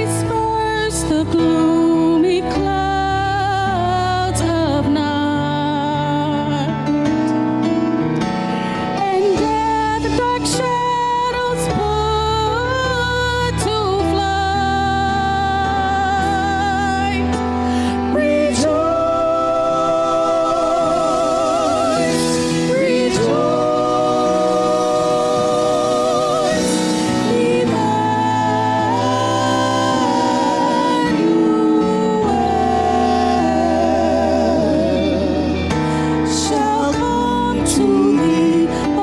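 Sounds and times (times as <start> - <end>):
sustained accompaniment chords: 16.2 - 39.0.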